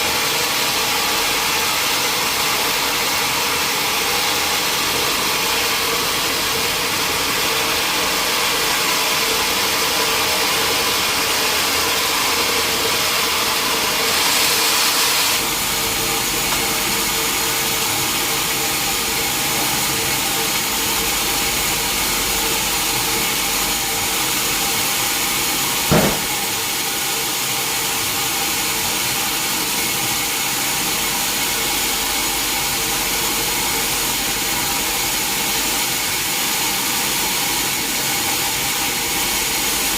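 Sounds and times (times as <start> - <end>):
sawmill machinery droning: 0.0 - 39.9
sharp knock: 25.9 - 26.4.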